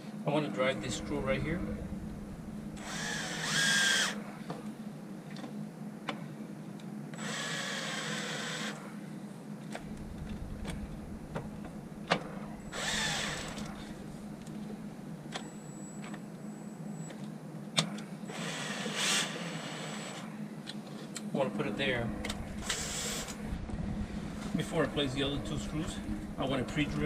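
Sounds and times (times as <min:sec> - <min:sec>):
cordless drill motor whine: 0:01.8 - 0:04.2, 0:07.1 - 0:08.9, 0:12.4 - 0:14.3, 0:18.3 - 0:20.2, 0:22.5 - 0:23.4.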